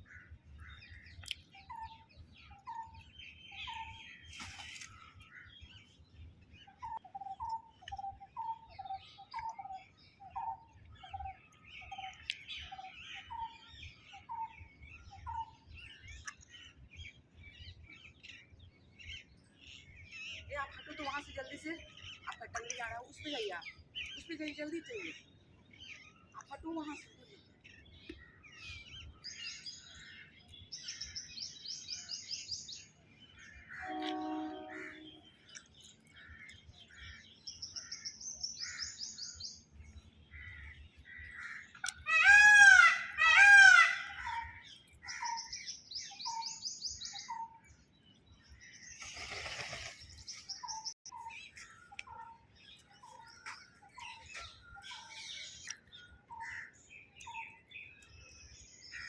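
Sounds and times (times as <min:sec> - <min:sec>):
birds chirping and trilling: 0:00.0 - 0:59.0
loud arching bird calls: 0:40.4 - 0:46.4.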